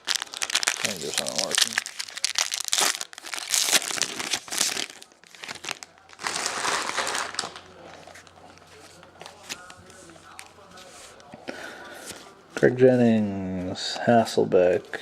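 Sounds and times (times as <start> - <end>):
wrapper crinkling: 0.0 - 8.4.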